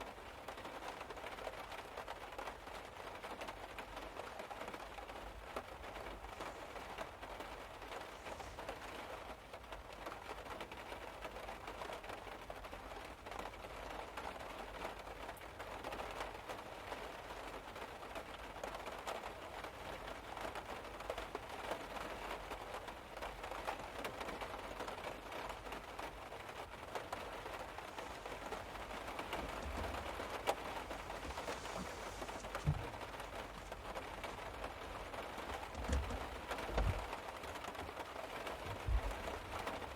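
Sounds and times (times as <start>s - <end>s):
rain pattering on car roof: 0.0s - 39.9s
low thumps: 27.6s - 37.1s.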